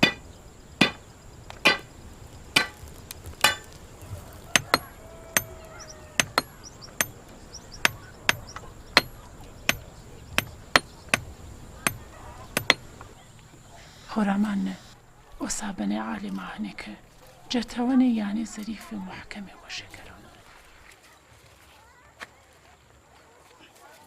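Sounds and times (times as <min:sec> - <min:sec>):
hammer striking stone: 0:00.0 - 0:00.2, 0:00.8 - 0:01.0, 0:01.6 - 0:01.9, 0:02.6 - 0:03.8, 0:04.5 - 0:05.6, 0:06.2 - 0:07.2, 0:07.8 - 0:12.9.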